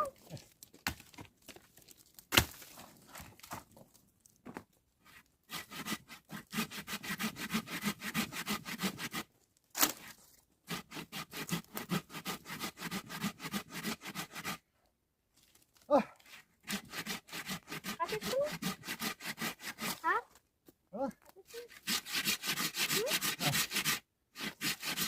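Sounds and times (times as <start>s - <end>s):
hand saw cutting wood: 5.1s - 14.6s, 16.2s - 20.2s, 21.4s - 25.0s.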